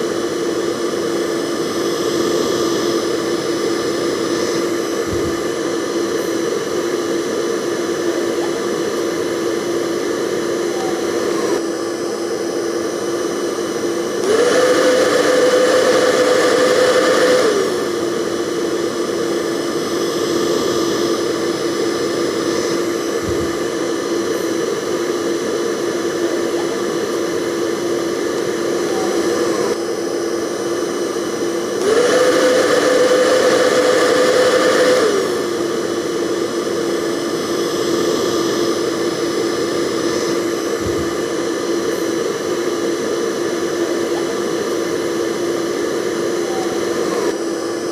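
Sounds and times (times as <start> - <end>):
hair dryer running: 0.0 - 47.9.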